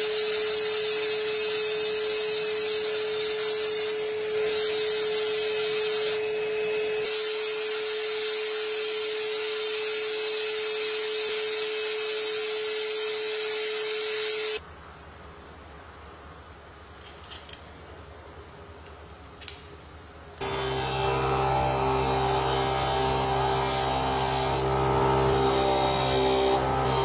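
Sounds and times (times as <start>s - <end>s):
electric motor humming: 20.4s - 27.0s.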